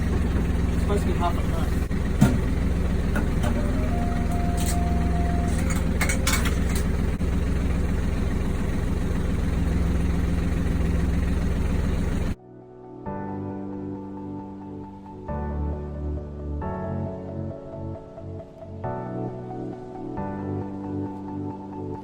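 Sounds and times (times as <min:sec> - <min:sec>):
boat engine droning: 0:00.0 - 0:12.4.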